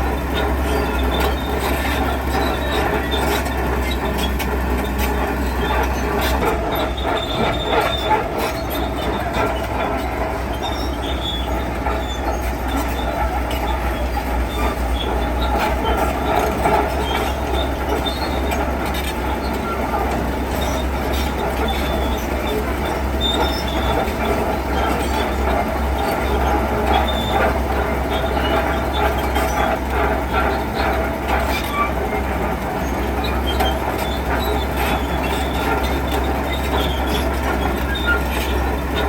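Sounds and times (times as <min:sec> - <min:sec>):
heavy machine engine: 0:00.0 - 0:39.0
high-pitched metallic squeals: 0:00.1 - 0:19.5.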